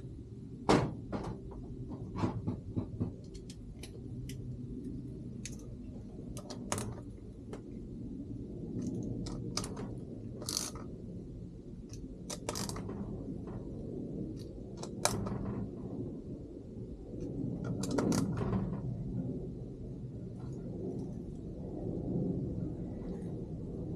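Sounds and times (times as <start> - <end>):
steady low rumble: 0.0 - 23.9
tools clicking and scraping: 8.8 - 10.8, 11.9 - 12.9, 14.4 - 15.4.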